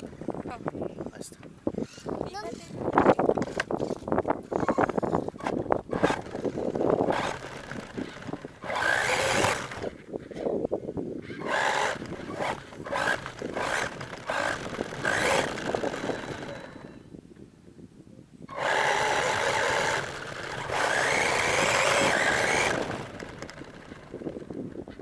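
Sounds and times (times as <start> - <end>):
toy truck motor whine: 1.8 - 2.6, 3.5 - 10.0, 11.3 - 17.0, 18.5 - 24.5.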